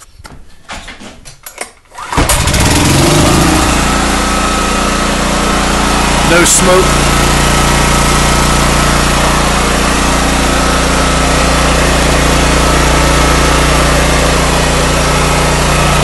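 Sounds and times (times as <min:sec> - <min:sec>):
generator engine running: 0:02.1 - 0:16.0.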